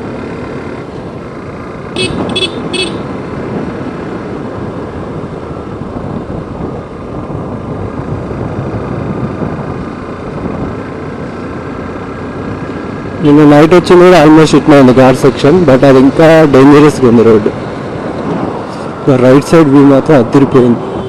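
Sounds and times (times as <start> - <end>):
motorcycle engine running: 0.0 - 13.7
horn toots: 2.0 - 3.1
wind on microphone: 5.2 - 10.8.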